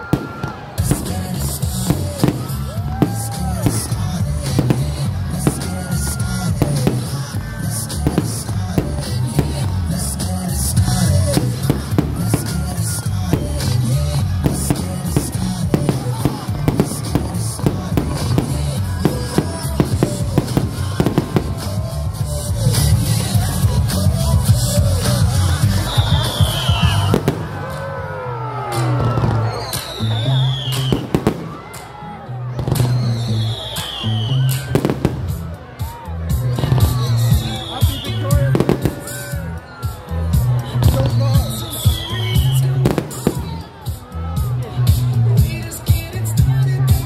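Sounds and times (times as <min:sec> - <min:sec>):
fireworks bangs: 0:00.0 - 0:23.4, 0:25.6 - 0:27.8, 0:30.6 - 0:31.9, 0:32.6 - 0:39.3, 0:40.8 - 0:43.9
loud music with heavy bass: 0:00.0 - 0:47.0.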